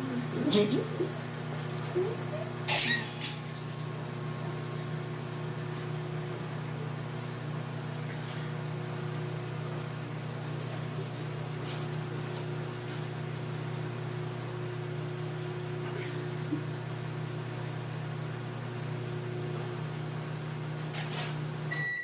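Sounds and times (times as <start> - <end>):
microwave oven humming: 0.0 - 22.0.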